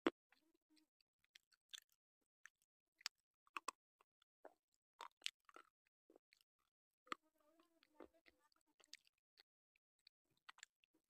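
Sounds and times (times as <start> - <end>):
crisp chewing crunches: 5.0 - 6.4.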